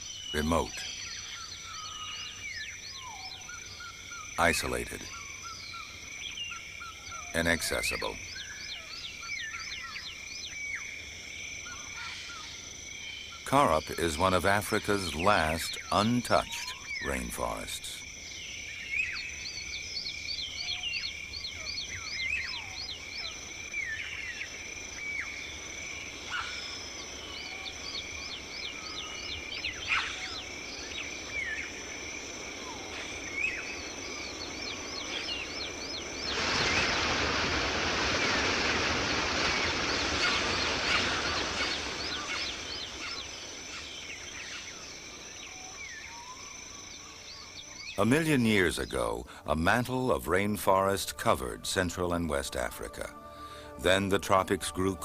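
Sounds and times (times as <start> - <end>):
high insect drone: 0.0 - 55.0
forest animal calls: 11.6 - 50.2.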